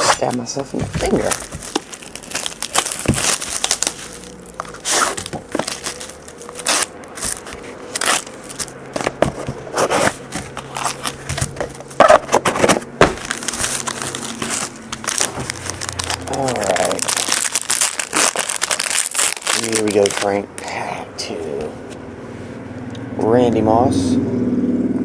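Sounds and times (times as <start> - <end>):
plastic packaging crinkling and tearing: 0.0 - 20.6.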